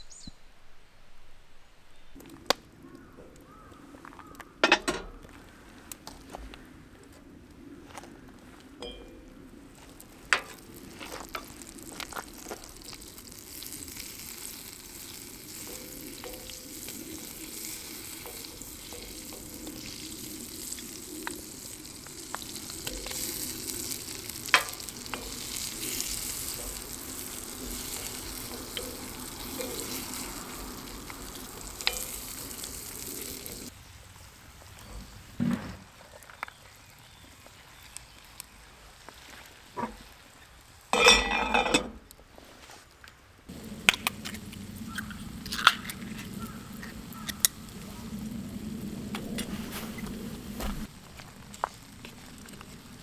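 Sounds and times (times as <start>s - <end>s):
food sizzling in a pan: 9.8s - 33.7s, 36.6s - 41.9s, 43.5s - 53.0s
sharp pops and clicks: 43.6s - 47.6s.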